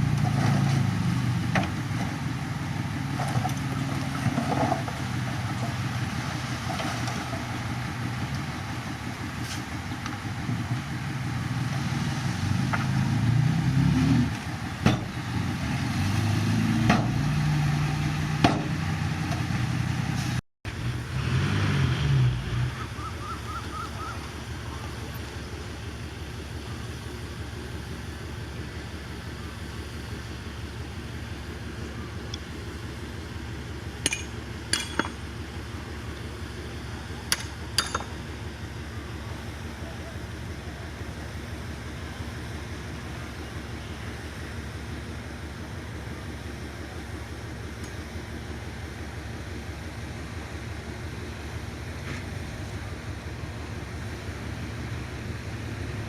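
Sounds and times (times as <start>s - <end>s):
diesel earthmoving machine engine: 0.0s - 56.0s
sharp metallic clanks: 34.0s - 35.3s.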